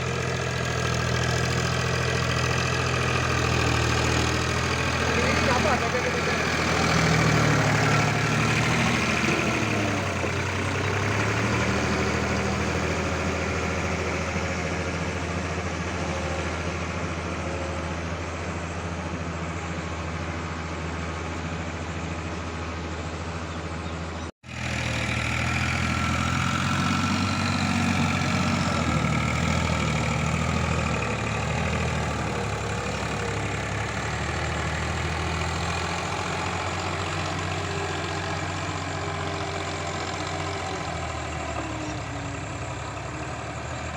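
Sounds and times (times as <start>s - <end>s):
diesel tractor engine running: 0.0s - 43.9s.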